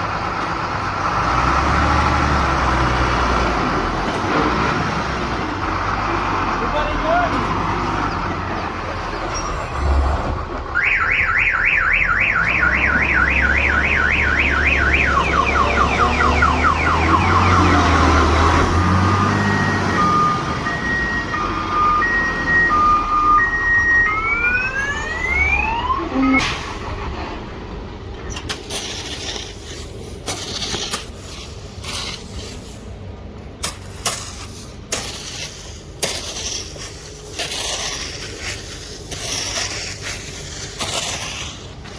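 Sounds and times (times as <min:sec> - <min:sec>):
electronic siren: 0:10.8 - 0:26.4.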